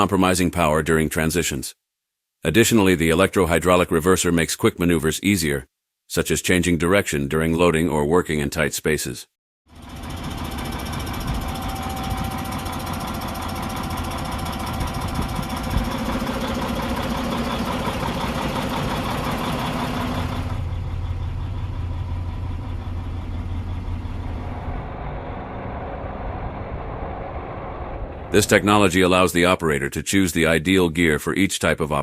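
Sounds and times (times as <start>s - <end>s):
tractor diesel engine running: 9.7s - 29.6s.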